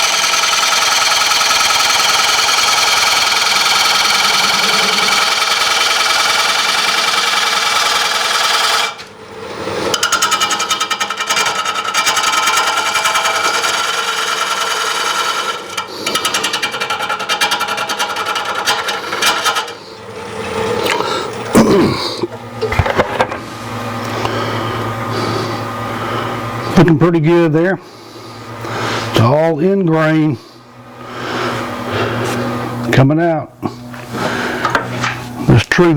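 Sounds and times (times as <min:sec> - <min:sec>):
gouge cutting wood on a lathe: 0:00.0 - 0:09.0, 0:09.9 - 0:20.4.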